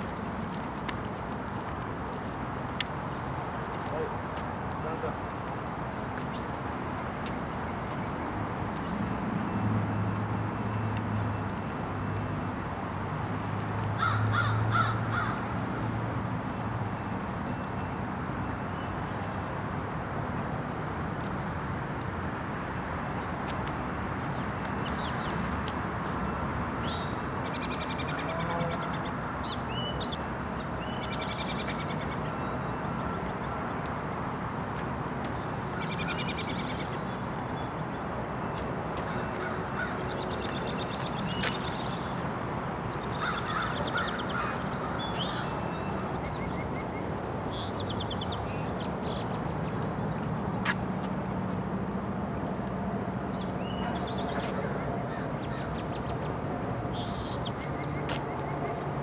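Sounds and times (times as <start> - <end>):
outdoor background noise: 0.0 - 59.0
birds chirping trills: 35.1 - 50.6.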